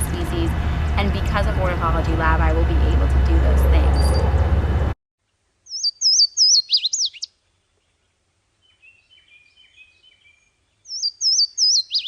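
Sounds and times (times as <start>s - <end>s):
songbird singing high slurred notes: 5.6s - 8.0s, 8.6s - 12.0s
faint lower bird twittering: 5.6s - 12.0s.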